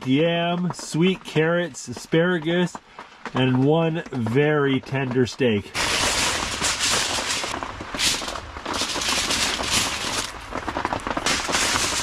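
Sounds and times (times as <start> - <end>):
fire crackles and pops: 0.0 - 12.0
food sizzling over campfire: 5.7 - 12.0.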